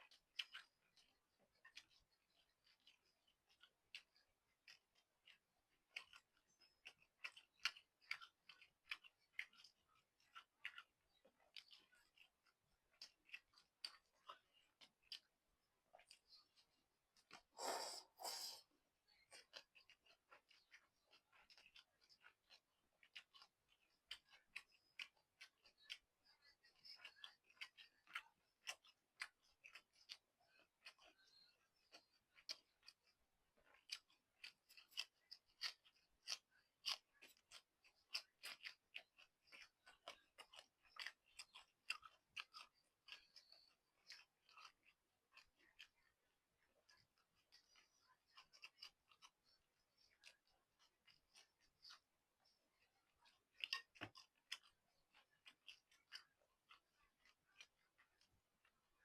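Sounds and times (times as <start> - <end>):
chewing with wet mouth clicks: 0.0 - 59.0.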